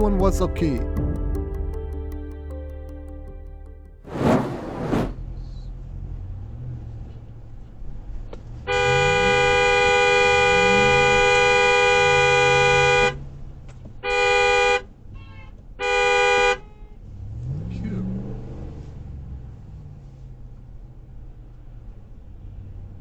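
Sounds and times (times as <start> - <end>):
vehicle engine and road noise: 4.1 - 14.0, 16.6 - 23.0.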